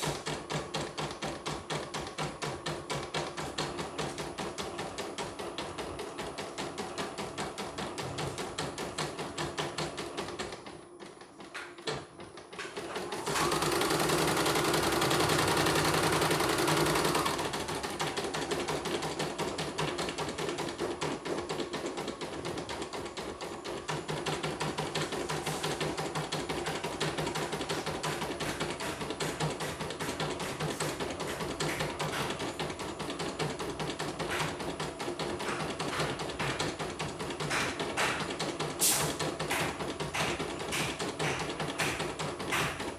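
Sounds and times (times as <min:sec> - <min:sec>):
embroidery machine stitching: 0:11.8 - 0:42.9.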